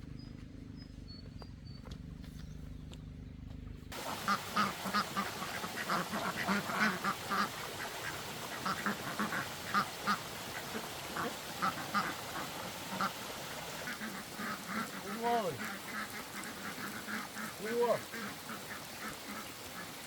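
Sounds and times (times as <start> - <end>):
ducks quacking: 3.9 - 20.0.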